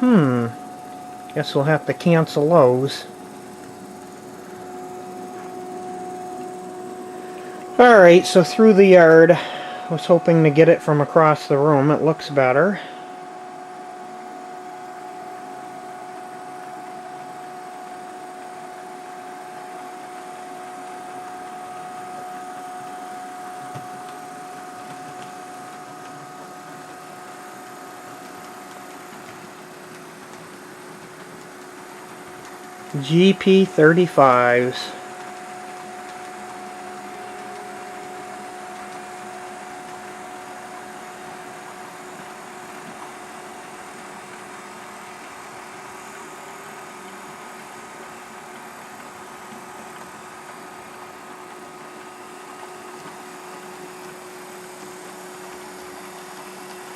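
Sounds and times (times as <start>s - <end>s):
model train motor whine: 0.0s - 56.9s.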